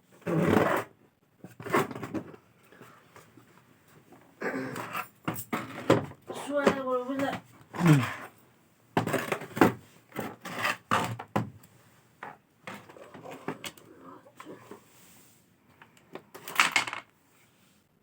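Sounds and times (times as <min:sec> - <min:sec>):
objects knocking and clattering: 0:04.7 - 0:08.3, 0:09.0 - 0:11.6, 0:12.2 - 0:13.8, 0:16.2 - 0:17.1.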